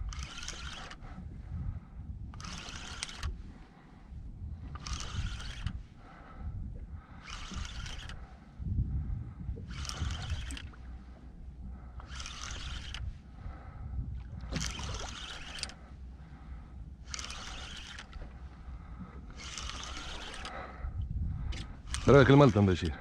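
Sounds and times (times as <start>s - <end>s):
fishing reel being cranked: 0.0s - 1.2s, 2.3s - 3.4s, 4.7s - 5.9s, 7.1s - 8.4s, 9.6s - 11.0s, 12.0s - 13.2s, 14.4s - 15.8s, 17.0s - 18.4s, 19.3s - 20.7s, 21.5s - 23.0s
low rumble of boat and sea: 0.0s - 23.0s.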